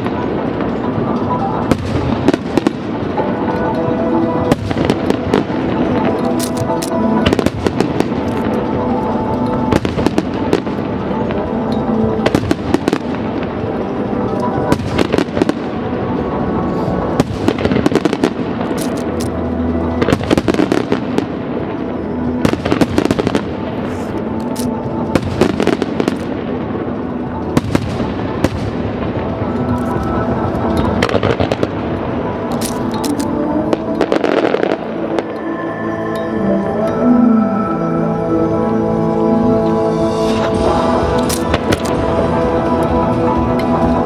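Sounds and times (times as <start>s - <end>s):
fireworks bursting: 0.0s - 35.4s, 39.3s - 44.0s
fireworks crackling: 0.0s - 35.6s, 38.7s - 44.0s
music: 0.0s - 44.0s.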